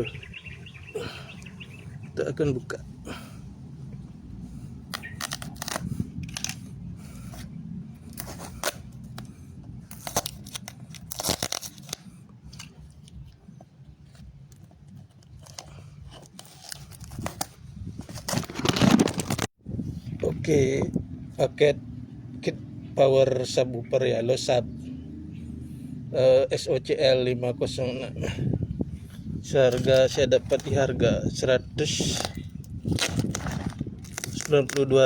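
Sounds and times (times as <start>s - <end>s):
plastic and tape tearing: 4.9s - 6.7s, 8.0s - 9.3s, 9.9s - 13.2s, 14.6s - 19.5s, 32.0s - 35.0s.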